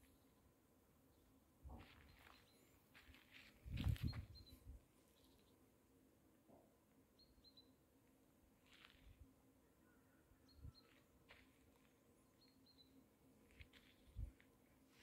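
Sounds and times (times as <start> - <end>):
faint bird chirps: 1.1 - 2.8, 3.9 - 5.6, 7.1 - 7.8, 9.6 - 11.1, 12.3 - 13.1.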